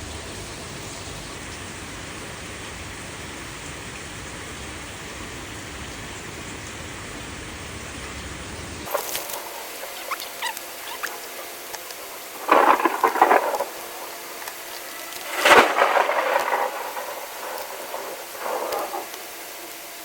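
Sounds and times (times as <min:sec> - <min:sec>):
faint squeaks and clicks: 0:08.9 - 0:19.8.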